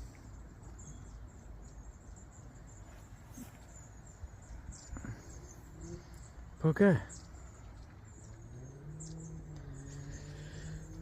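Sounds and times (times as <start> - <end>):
faint high-pitched chirping: 0.0 - 11.0.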